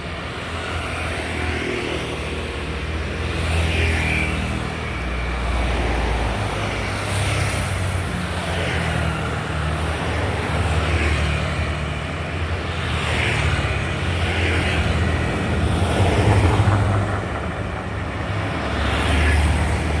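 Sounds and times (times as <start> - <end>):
vehicles passing: 0.0 - 20.0.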